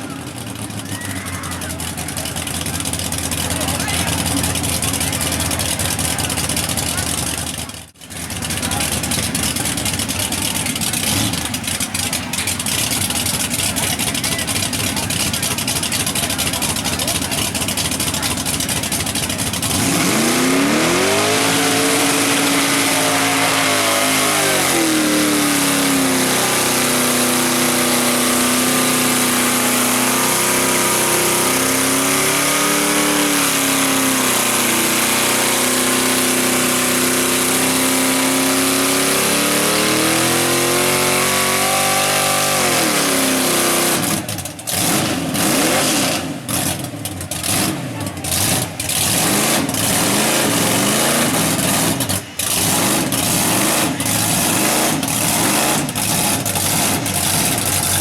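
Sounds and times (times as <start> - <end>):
truck engine revving high: 0.0 - 58.0.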